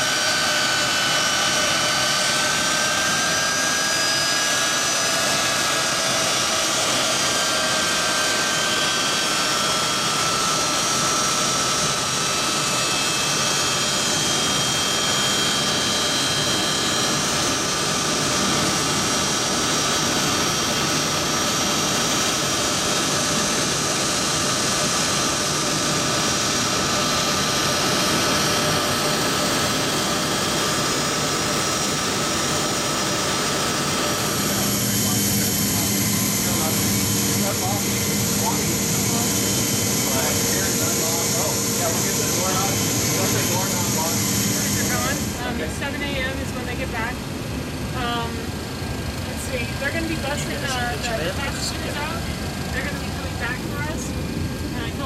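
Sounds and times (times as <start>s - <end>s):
jet turbine running: 0.0s - 55.0s.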